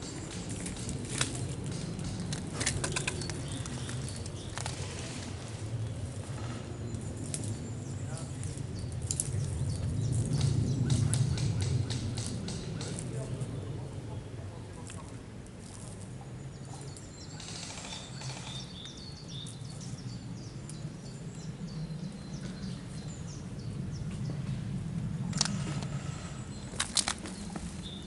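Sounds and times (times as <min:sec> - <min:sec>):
small birds chirping: 0:00.0 - 0:28.0
steady low rumble: 0:00.0 - 0:28.0.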